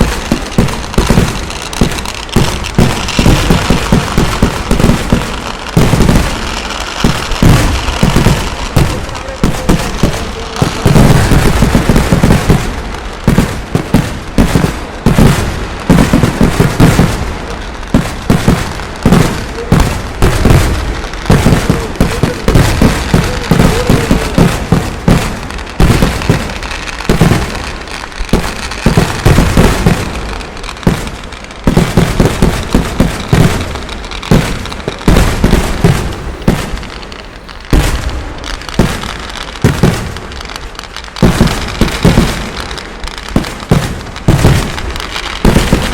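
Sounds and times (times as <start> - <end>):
firecracker bangs and explosions: 0.0 - 45.9.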